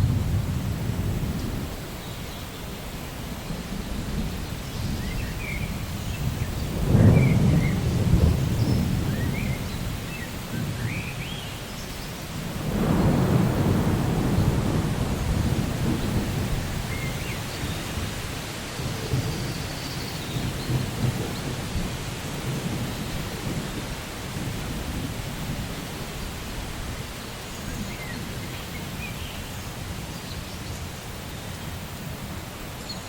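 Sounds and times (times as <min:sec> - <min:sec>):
thunder rolling: 0:00.0 - 0:01.8, 0:03.6 - 0:10.9, 0:12.4 - 0:18.2
steady rain: 0:00.0 - 0:33.0.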